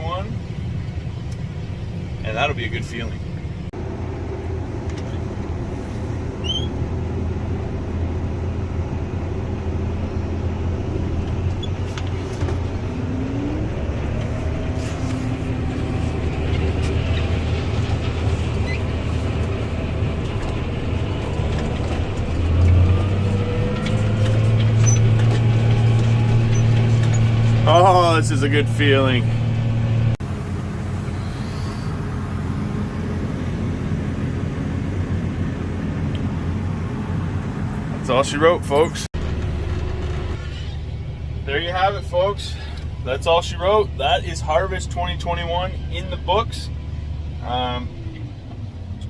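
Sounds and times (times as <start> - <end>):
tractor engine running under load: 13.6 - 41.4.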